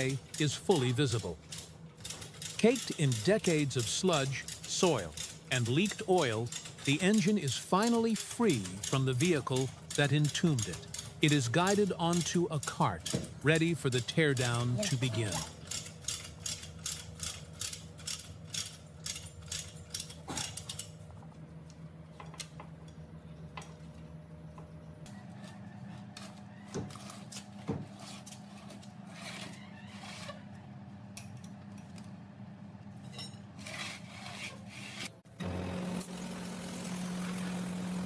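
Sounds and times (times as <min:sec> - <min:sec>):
chain hoist ratcheting clicks: 0:00.0 - 0:21.0.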